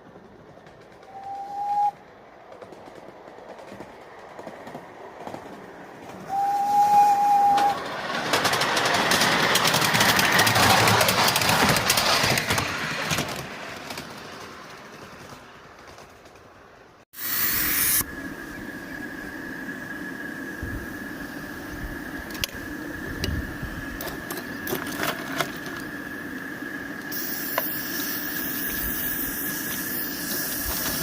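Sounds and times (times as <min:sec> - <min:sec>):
steam locomotive chuffing: 0:00.0 - 0:16.0, 0:17.2 - 0:31.0
rail clatter: 0:00.0 - 0:17.0, 0:22.0 - 0:31.0
steam locomotive whistle: 0:01.1 - 0:02.0, 0:06.3 - 0:07.9.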